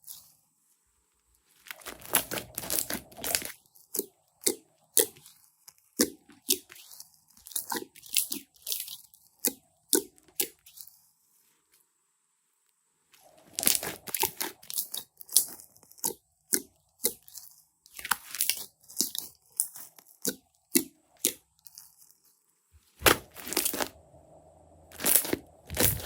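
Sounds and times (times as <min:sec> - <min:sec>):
slime crackling and popping: 0:01.6 - 0:05.2, 0:13.4 - 0:21.9, 0:23.0 - 0:23.9.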